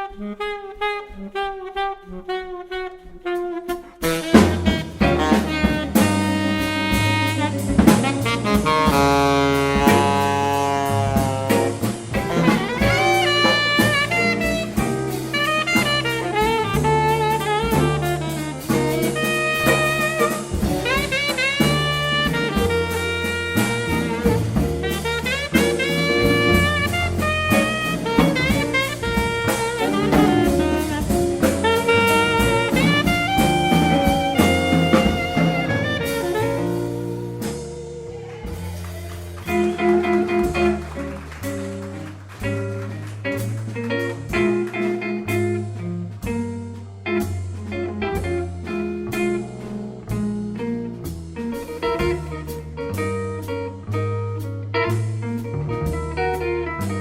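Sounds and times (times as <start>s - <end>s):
horn line with bending notes: 0.0s - 46.2s
jazz band playing blues: 0.0s - 57.0s
drum kit and cymbals: 3.2s - 57.0s
walking bass line: 4.0s - 57.0s
guitar chords: 11.3s - 38.2s.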